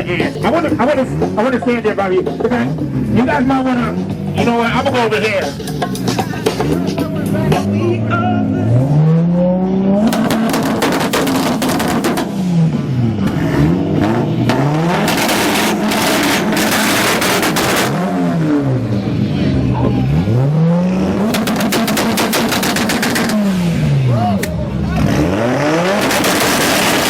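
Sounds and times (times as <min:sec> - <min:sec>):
exhaust crackling: 0:00.0 - 0:27.0
car exhausts revving hard: 0:06.0 - 0:27.0.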